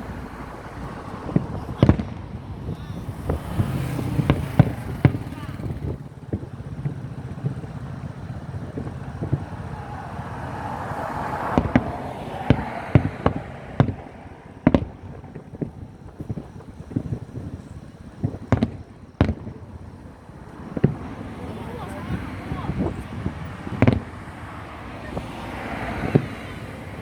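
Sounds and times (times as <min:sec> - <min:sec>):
firework shells bursting: 0:00.0 - 0:21.3
firework hiss: 0:00.0 - 0:27.0.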